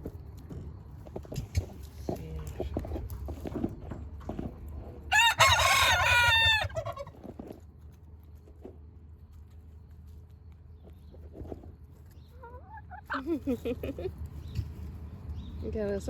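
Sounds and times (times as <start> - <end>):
rooster crowing: 5.1 - 7.0.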